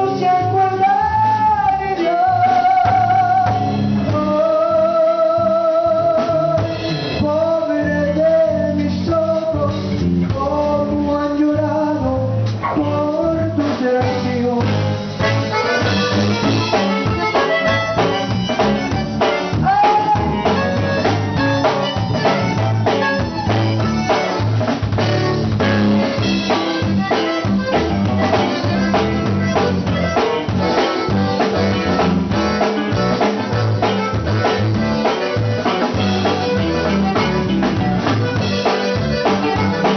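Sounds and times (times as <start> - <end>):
steady drum beat: 0.0 - 4.7, 6.0 - 8.2, 9.2 - 39.9
band playing melody: 0.0 - 39.9.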